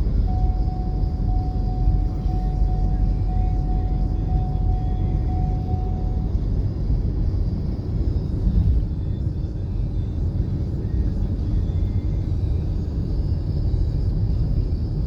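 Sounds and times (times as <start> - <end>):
faint steady tone: 0.0 - 7.0.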